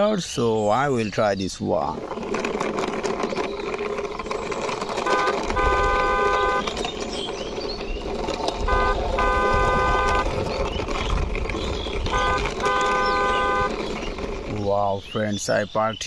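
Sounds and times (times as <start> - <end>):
toy car horn honking: 5.0 - 6.8, 8.6 - 10.4, 12.0 - 13.8.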